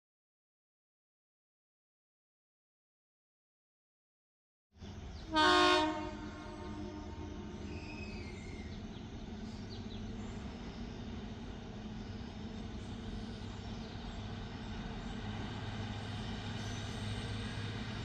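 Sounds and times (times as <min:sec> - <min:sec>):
train engine hum: 0:04.8 - 0:18.0
train rumble: 0:04.8 - 0:18.0.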